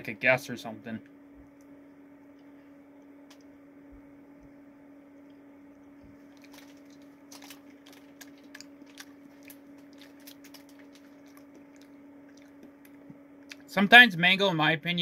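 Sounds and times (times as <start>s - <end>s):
steady low hum: 0.0s - 15.0s
wet chewing clicks and smacks: 6.3s - 13.7s.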